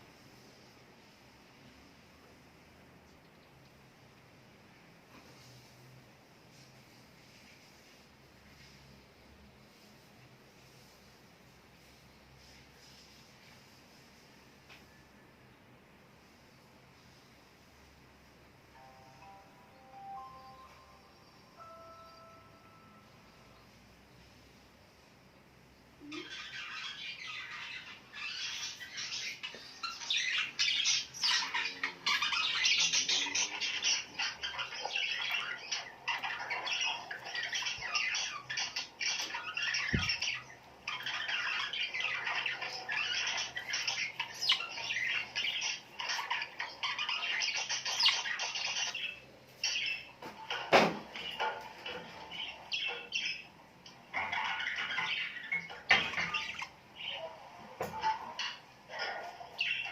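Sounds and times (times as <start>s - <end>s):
small birds chattering: 25.0s - 59.9s.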